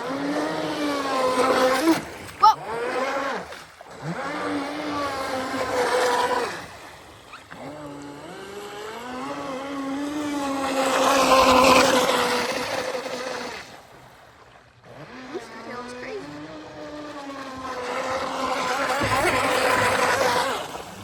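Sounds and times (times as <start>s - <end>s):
model boat motor whining: 0.0s - 21.0s.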